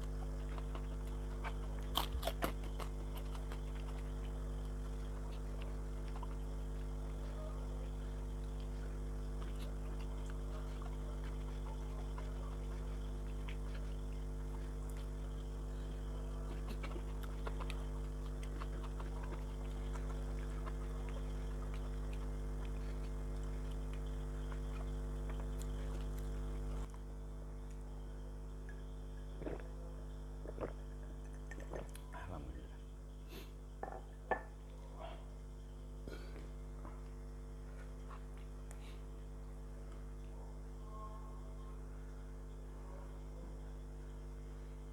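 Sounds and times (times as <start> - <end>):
chewing fried food: 0.0 - 40.8
low electrical hum: 0.0 - 44.9.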